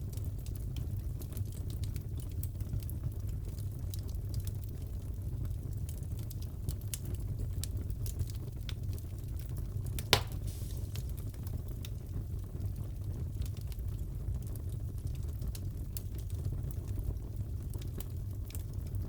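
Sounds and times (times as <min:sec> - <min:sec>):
wood fire crackling: 0:00.0 - 0:19.0
sharp pop from fire: 0:10.0 - 0:11.4.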